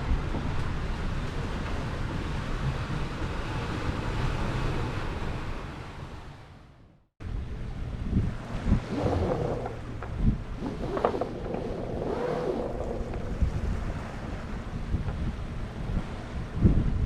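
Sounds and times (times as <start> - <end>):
sea noise: 0.0 - 17.0
wind rushing over microphone: 7.2 - 17.0.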